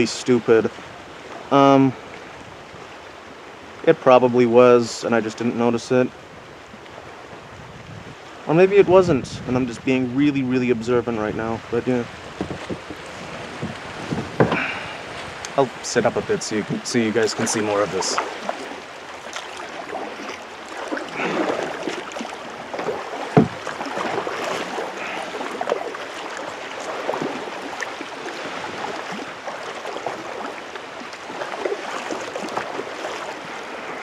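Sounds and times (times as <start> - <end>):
water lapping: 0.0 - 34.0
paddle strokes splashing: 11.7 - 34.0.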